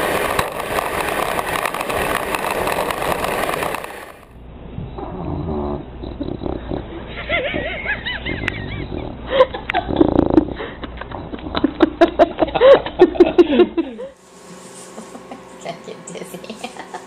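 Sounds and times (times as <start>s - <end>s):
sharp clicks and knocks: 0.1s - 4.3s.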